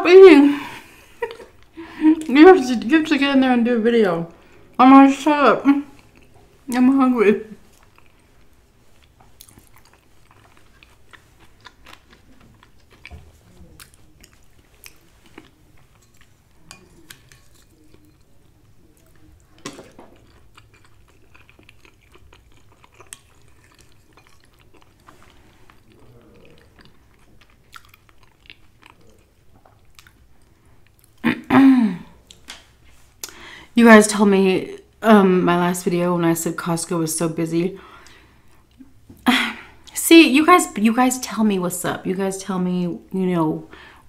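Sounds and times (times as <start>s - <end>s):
person chewing food: 5.9s - 6.7s, 7.6s - 31.2s.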